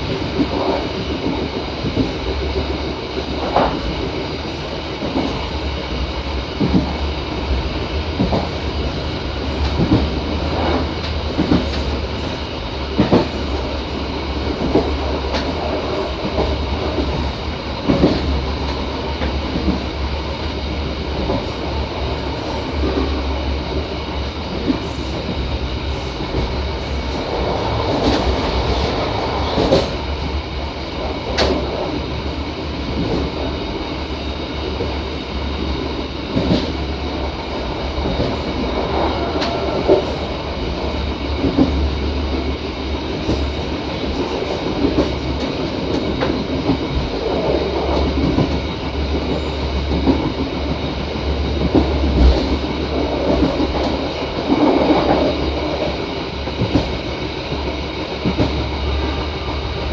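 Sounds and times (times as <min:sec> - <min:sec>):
rumble of wheels on rails: 0:00.0 - 0:59.9.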